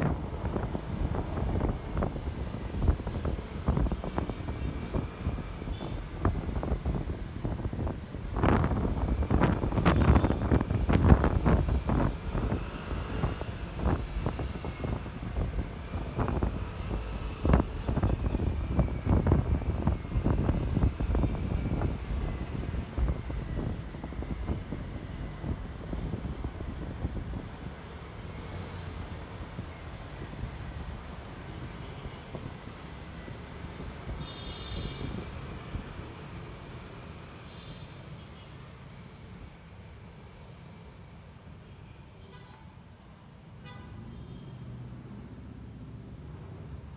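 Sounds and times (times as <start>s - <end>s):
wind buffeting microphone: 0.0s - 28.3s
road noise: 0.0s - 46.9s.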